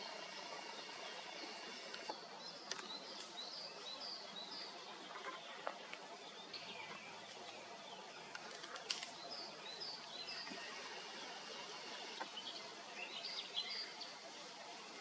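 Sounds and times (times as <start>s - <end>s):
steady background hiss: 0.0s - 15.0s
faint clicks: 1.5s - 3.4s.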